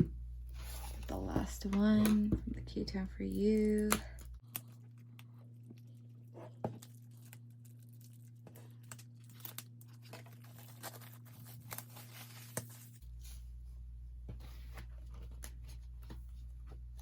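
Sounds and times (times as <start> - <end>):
packaging torn and crinkled: 6.9 - 12.9.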